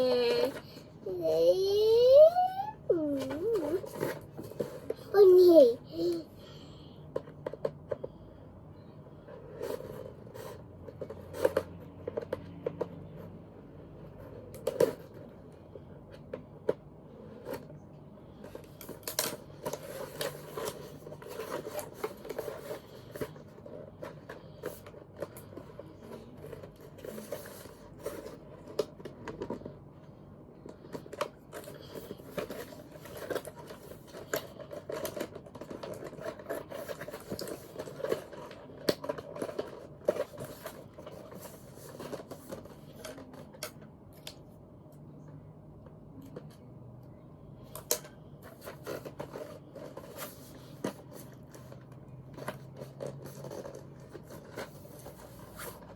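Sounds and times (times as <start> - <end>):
plastic packaging crinkling: 18.6 - 29.7, 30.9 - 44.4.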